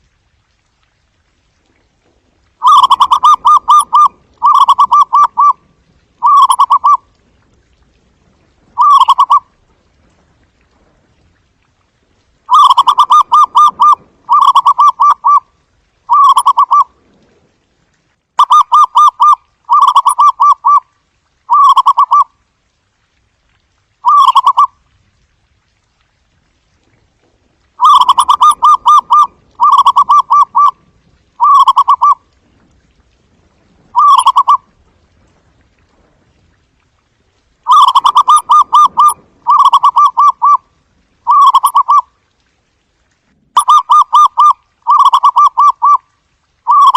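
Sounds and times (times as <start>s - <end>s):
dove staccato cooing: 2.6s - 5.6s, 6.2s - 7.0s, 8.8s - 9.4s, 12.5s - 15.4s, 16.1s - 16.9s, 27.8s - 30.8s, 31.4s - 32.2s, 34.0s - 34.6s, 37.7s - 40.6s, 41.3s - 42.1s, 43.6s - 46.0s.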